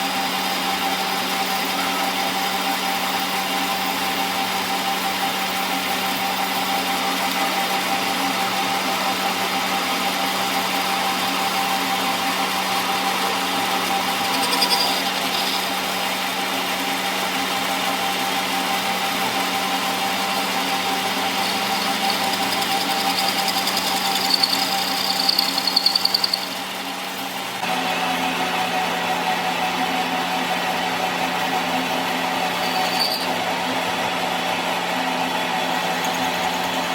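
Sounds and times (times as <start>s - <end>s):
workshop machine humming: 5.9s - 36.9s
high-pitched squeal: 13.6s - 15.8s, 21.3s - 26.7s, 32.5s - 33.4s.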